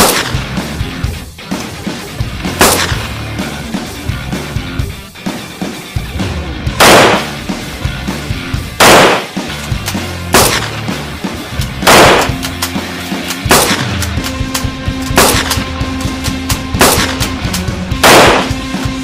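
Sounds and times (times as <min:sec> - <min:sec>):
loud gunshot-like bangs: 0:00.0 - 0:00.4, 0:02.6 - 0:03.0, 0:06.8 - 0:07.3, 0:08.8 - 0:09.4, 0:10.3 - 0:10.7, 0:11.8 - 0:12.4, 0:13.5 - 0:13.9, 0:15.2 - 0:15.6, 0:16.8 - 0:17.3, 0:18.0 - 0:18.6
background music: 0:00.0 - 0:19.0.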